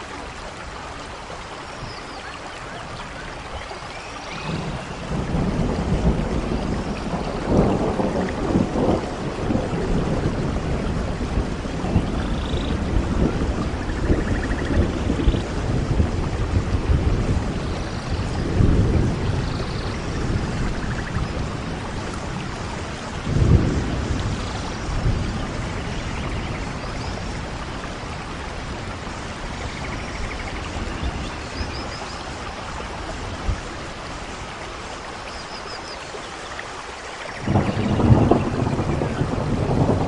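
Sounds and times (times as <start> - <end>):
steady rain falling: 0.0 - 40.0
rolls of thunder: 4.4 - 22.5, 23.2 - 26.8, 37.4 - 40.0.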